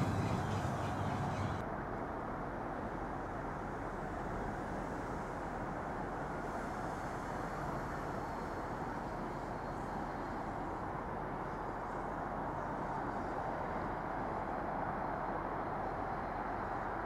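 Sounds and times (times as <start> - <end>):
faint high whine: 0.0 - 1.6
train rumbling past: 0.0 - 1.6.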